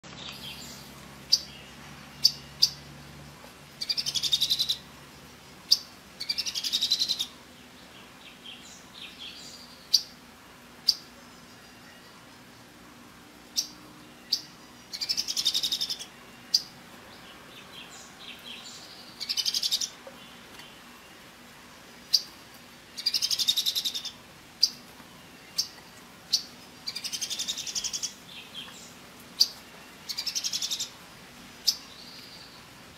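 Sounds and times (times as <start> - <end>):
songbird trilled phrases: 3.8 - 4.9, 5.7 - 7.4, 13.5 - 16.7, 17.6 - 20.4, 23.0 - 24.8, 25.5 - 31.0.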